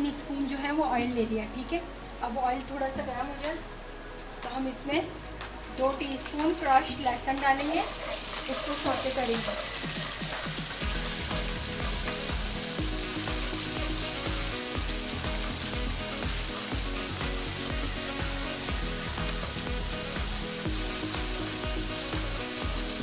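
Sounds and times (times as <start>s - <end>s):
background music: 0.0s - 23.0s
garlic sizzling in oil: 5.2s - 23.0s.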